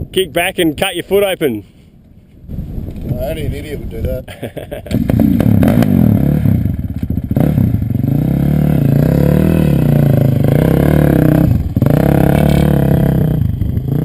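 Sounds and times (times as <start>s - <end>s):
dirt bike engine revving: 4.8s - 14.0s.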